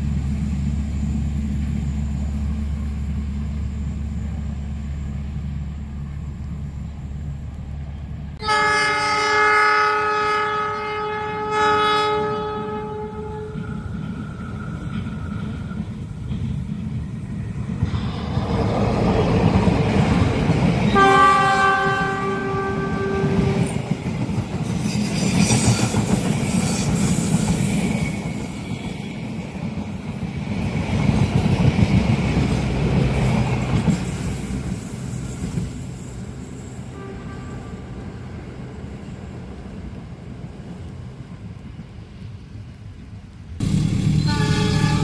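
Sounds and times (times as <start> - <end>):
train wheels rumbling on rails: 0.0 - 8.5, 12.1 - 45.0
train horn: 8.4 - 13.9, 20.9 - 23.8, 36.9 - 38.2, 44.0 - 45.0.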